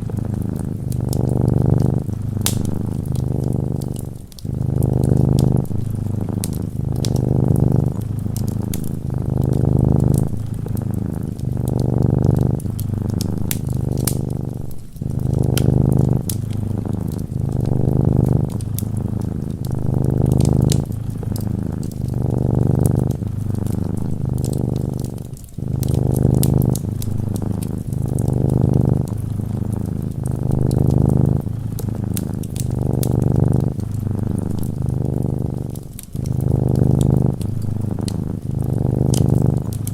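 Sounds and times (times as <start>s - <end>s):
cat purring: 0.0s - 39.9s
fireplace crackling: 0.0s - 39.9s.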